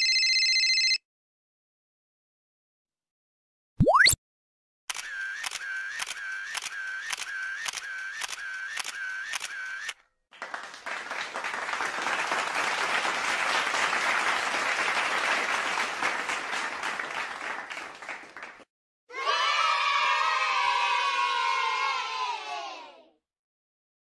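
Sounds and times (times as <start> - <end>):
applause: 10.3 - 18.7.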